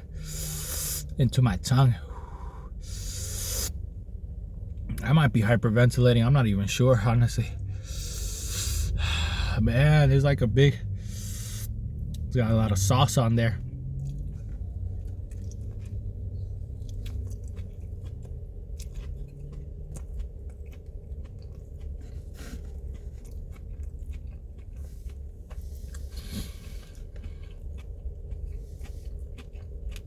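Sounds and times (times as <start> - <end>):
steady low hum: 0.0 - 30.0
chewing and biting food: 13.6 - 30.0.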